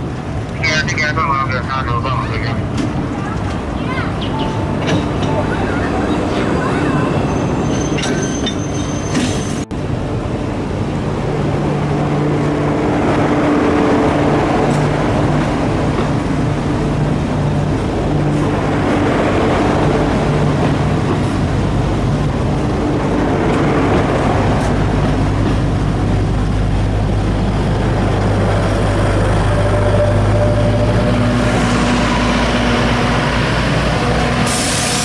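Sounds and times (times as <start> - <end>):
carriages rumbling on rails: 0.0 - 35.0
diesel engine drone: 9.6 - 35.0.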